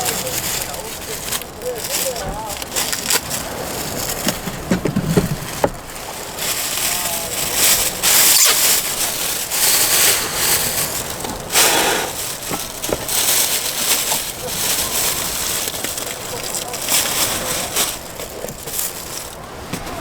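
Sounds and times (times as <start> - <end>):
utensil scraping pan: 7.8 - 14.2.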